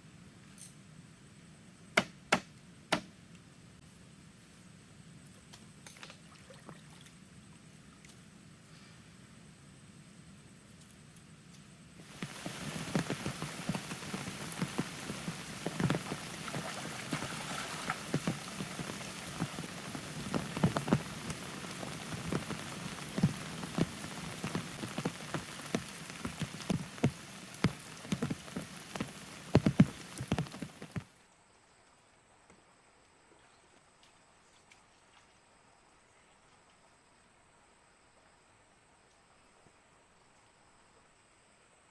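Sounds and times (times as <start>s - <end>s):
heavy rain falling: 12.0s - 31.1s
loud raindrops striking nearby: 12.0s - 31.1s.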